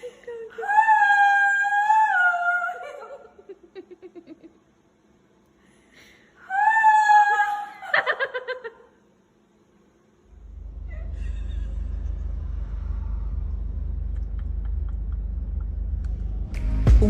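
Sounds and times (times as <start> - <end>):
steady low rumble: 10.2 - 17.0.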